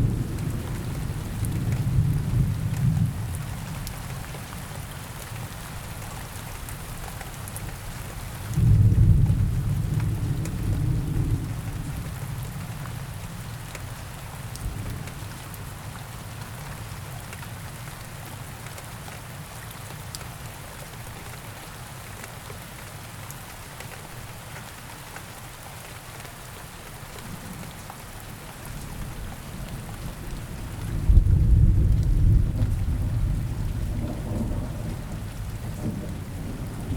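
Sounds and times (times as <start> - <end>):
steady rain: 0.0 - 36.9
deep thunder rumble: 8.6 - 12.0, 29.6 - 36.9.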